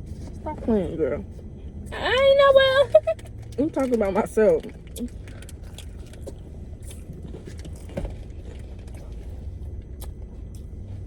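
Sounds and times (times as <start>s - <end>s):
car cabin rumble: 0.0s - 11.0s
open-mouthed chewing: 4.6s - 10.8s.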